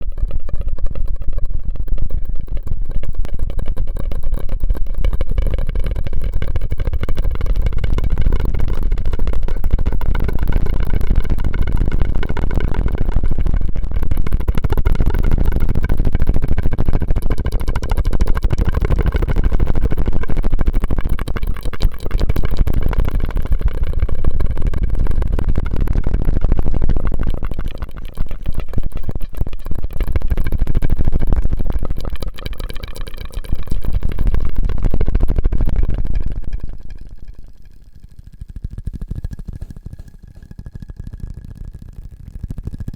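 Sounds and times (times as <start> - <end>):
wet mouth clicks and smacks: 17.4 - 24.1, 27.1 - 34.5.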